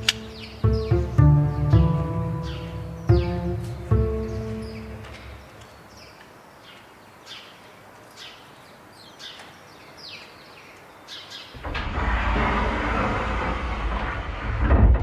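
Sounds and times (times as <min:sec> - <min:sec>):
small birds chirping: 0:00.0 - 0:11.7
loud rushing noise: 0:11.6 - 0:15.0.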